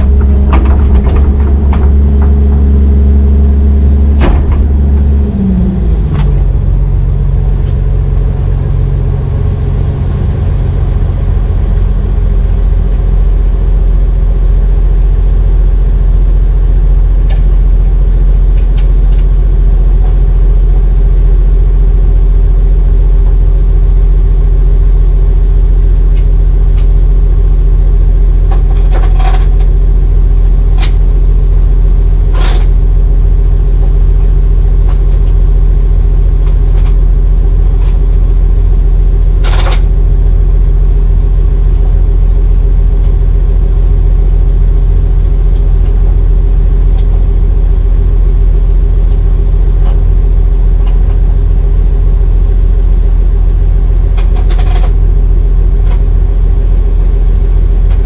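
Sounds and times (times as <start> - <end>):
sharp knocks: 0.0 - 6.7
heavy diesel engine running: 0.0 - 58.0.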